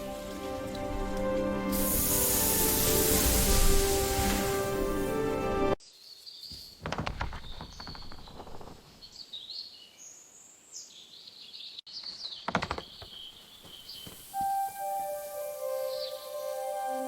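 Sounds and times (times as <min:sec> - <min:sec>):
soft outdoor ambience: 0:00.0 - 0:17.0
birds chirping: 0:05.9 - 0:14.4.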